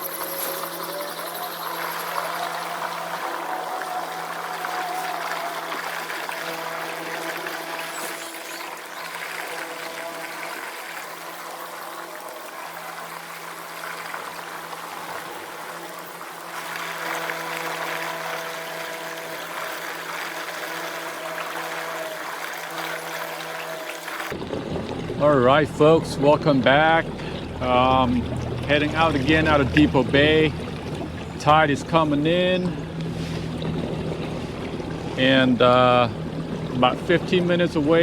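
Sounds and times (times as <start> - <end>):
electric motor humming: 0.0 - 24.4
water rushing along a hull: 0.0 - 38.0.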